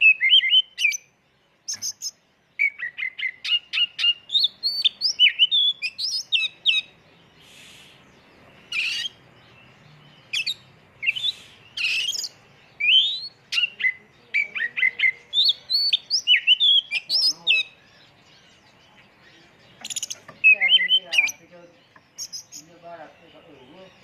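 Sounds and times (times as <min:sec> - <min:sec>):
bird singing high whistles: 0:00.0 - 0:01.1, 0:01.7 - 0:08.1, 0:10.3 - 0:17.7, 0:19.8 - 0:21.4
harsh rasping bird calls: 0:00.0 - 0:24.0.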